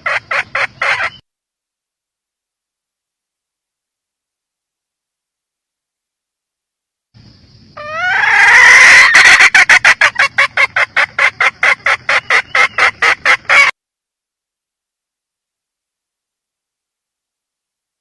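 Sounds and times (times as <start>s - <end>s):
hen squawking and clucking: 0.0s - 1.2s, 7.8s - 13.8s.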